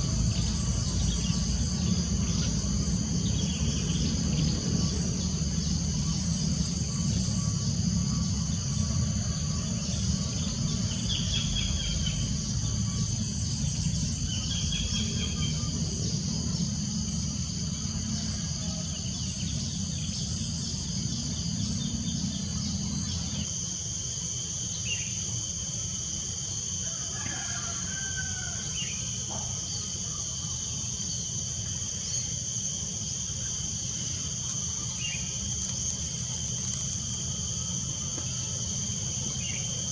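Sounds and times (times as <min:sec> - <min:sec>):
low steady rumble: 0:00.0 - 0:24.3
crickets and insects buzzing: 0:00.0 - 0:39.9.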